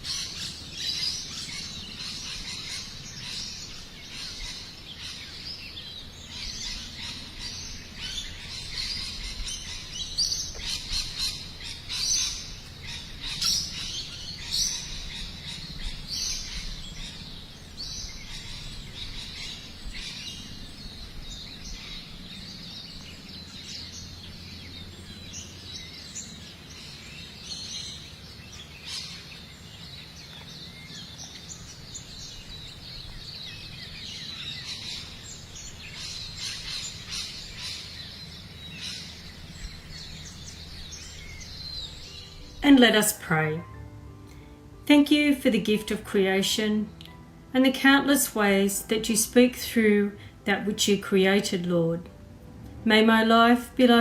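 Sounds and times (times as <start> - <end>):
birds chirping: 0.0 - 54.0
faint outdoor background: 0.0 - 54.0.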